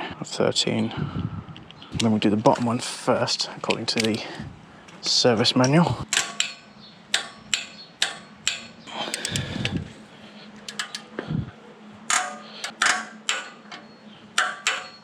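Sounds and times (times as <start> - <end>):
torque wrench clicking: 5.6 - 9.8, 10.7 - 11.1.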